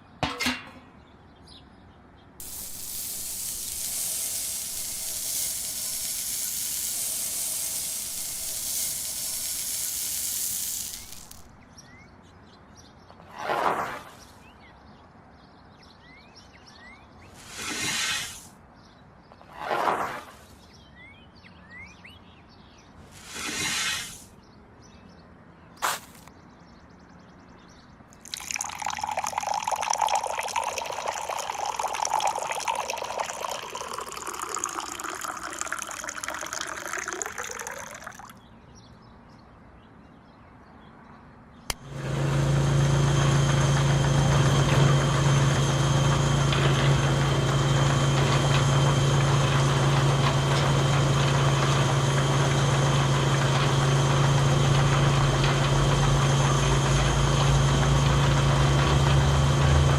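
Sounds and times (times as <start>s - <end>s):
small motor humming: 2.4s - 11.6s, 28.3s - 38.3s, 41.7s - 59.9s
water pouring: 2.4s - 11.6s, 28.2s - 38.4s.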